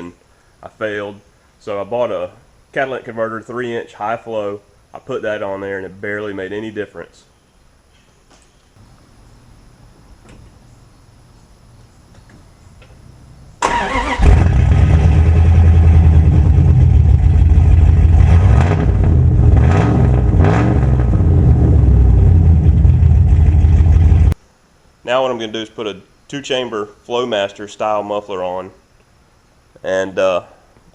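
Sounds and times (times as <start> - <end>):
loud engine exhaust: 14.0 - 24.4.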